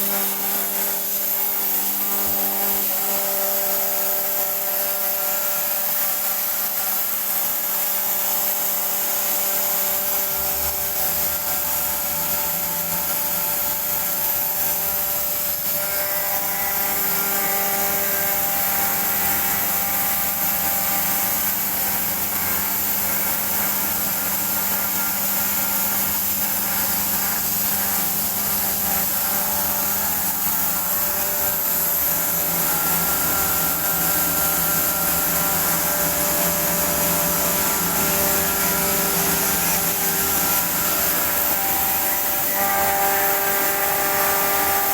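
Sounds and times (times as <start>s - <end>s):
industrial air compressors humming: 29.7s - 44.8s.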